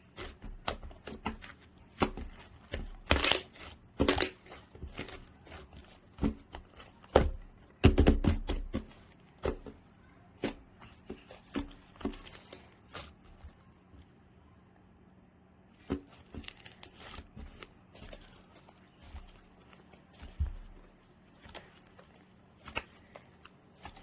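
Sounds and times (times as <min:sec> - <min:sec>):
slime squished by hand: 0:00.0 - 0:13.7.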